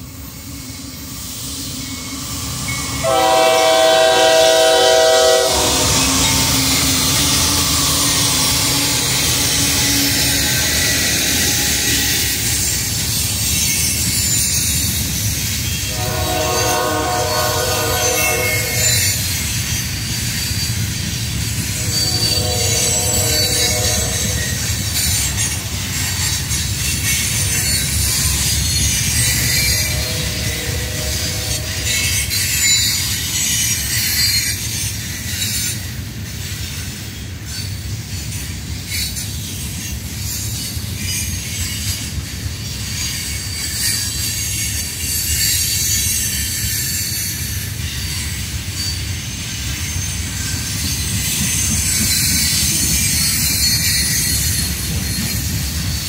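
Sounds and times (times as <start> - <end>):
train wheels rumbling on rail: 0.0 - 56.0
high-pitched wheel squeal: 0.5 - 35.2.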